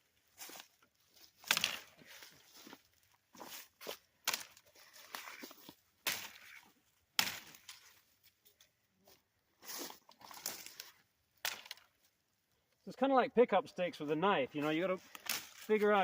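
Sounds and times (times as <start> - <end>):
leaves and twigs rustling: 0.0 - 12.9, 14.1 - 16.0
knife chopping branches: 1.4 - 2.0, 4.2 - 5.4, 6.0 - 6.6, 7.2 - 7.9, 11.4 - 11.8, 15.1 - 16.0.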